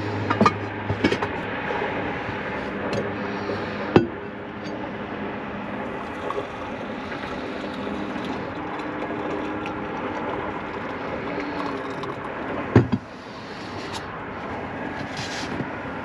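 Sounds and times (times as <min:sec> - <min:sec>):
hot water pouring into cup: 0:05.8 - 0:14.0.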